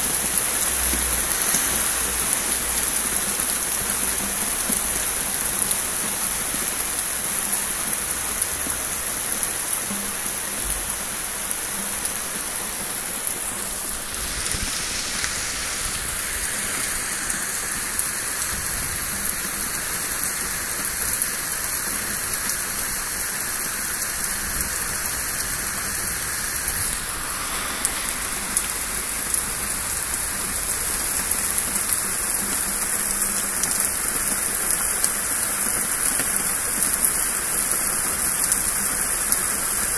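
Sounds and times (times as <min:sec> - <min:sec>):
heavy rain spattering: 0:00.0 - 0:39.9.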